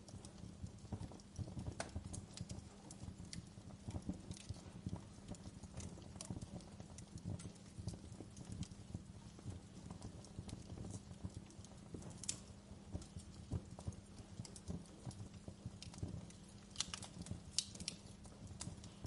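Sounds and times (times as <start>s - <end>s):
fire crackling and popping: 0.0s - 19.0s
low fire rumble: 0.0s - 19.0s.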